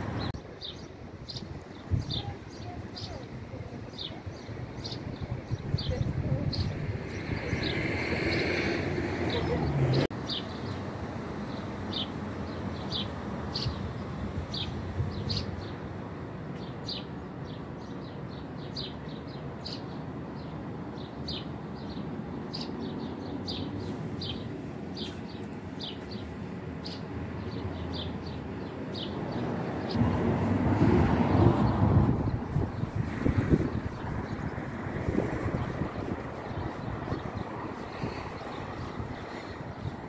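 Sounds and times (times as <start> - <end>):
low street noise: 0.0 - 40.0
small birds chirping: 0.2 - 10.8, 11.4 - 30.1, 31.4 - 40.0
loud rush of noise: 29.4 - 40.0.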